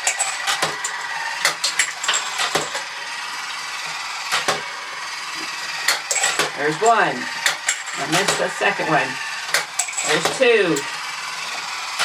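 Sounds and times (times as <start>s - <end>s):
plastic clicks and coins striking: 0.0s - 2.9s, 5.9s - 8.6s, 9.5s - 10.9s
toy motor whirring: 0.0s - 12.0s.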